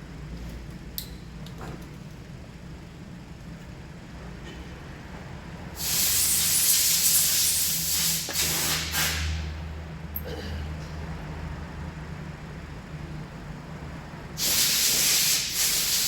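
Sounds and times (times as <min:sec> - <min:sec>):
steady low hum: 0:00.0 - 0:08.3, 0:09.1 - 0:14.4
loud pressurised hiss: 0:05.8 - 0:09.5, 0:14.4 - 0:16.0.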